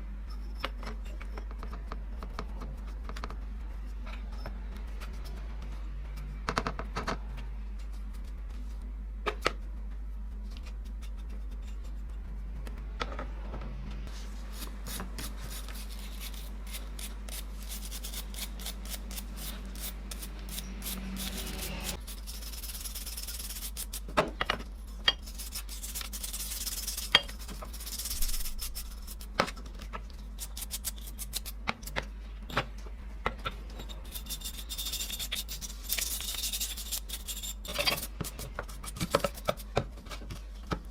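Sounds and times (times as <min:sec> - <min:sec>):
low hum: 0:00.0 - 0:23.5
scratchy scraping on metal: 0:14.1 - 0:24.1, 0:24.7 - 0:29.4, 0:33.5 - 0:39.8.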